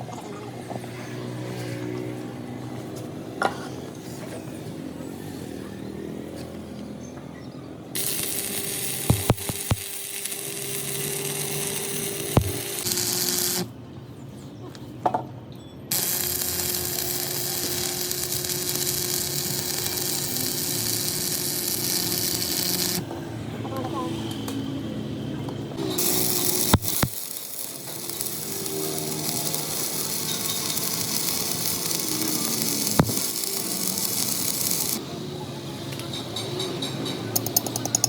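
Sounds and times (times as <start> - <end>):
electric power tool whirring: 8.0 - 13.7, 15.9 - 23.0, 25.8 - 35.0
sharp clicks and knocks: 9.1 - 9.9, 26.0 - 27.3, 32.8 - 33.3, 36.0 - 38.0.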